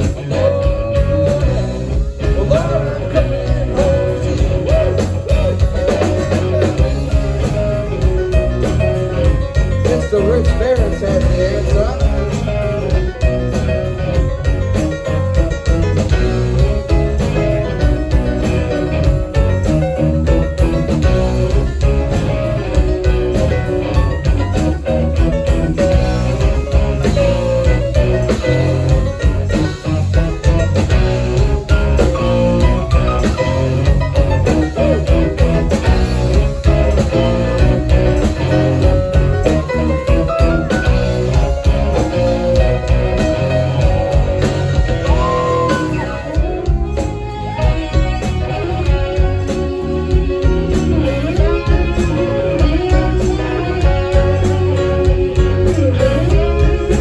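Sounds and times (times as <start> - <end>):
bass and drums: 0.0 - 57.0
electric guitar bending lead notes: 0.0 - 57.0
live band playing: 0.0 - 57.0.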